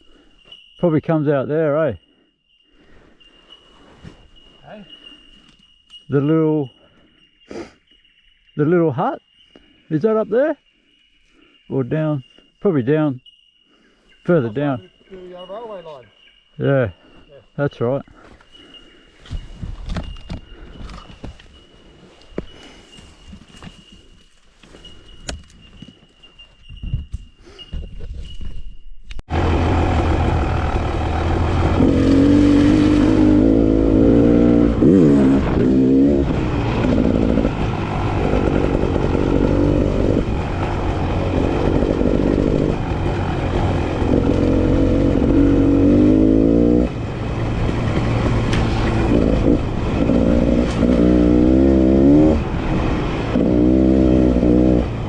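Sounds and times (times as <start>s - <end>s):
dirt bike engine revving: 29.3s - 55.0s.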